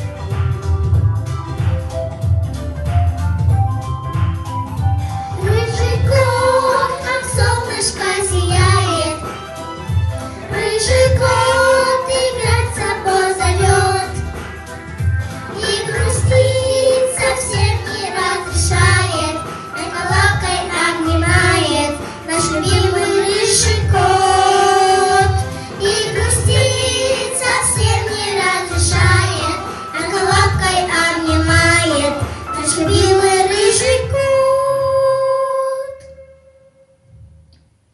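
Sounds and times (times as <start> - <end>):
backing track with steady beat: 0.0 - 34.8
girls singing in unison: 5.4 - 9.2, 10.5 - 14.3, 15.6 - 35.4.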